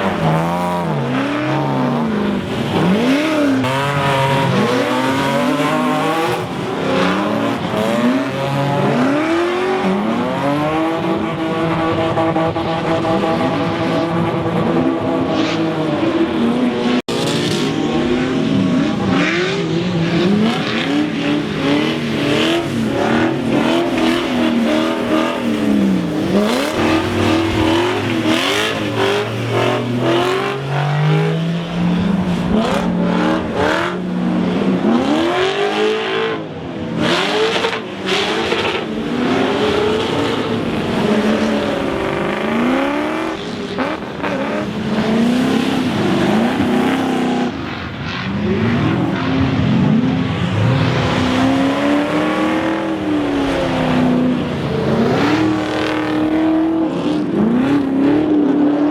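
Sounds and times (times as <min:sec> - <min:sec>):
car engines revving: 0:00.0 - 0:58.9.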